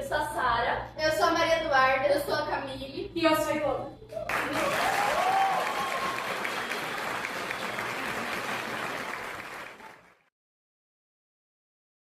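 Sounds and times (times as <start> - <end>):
person cheering: 4.1 - 6.7
audience applause: 4.3 - 10.3.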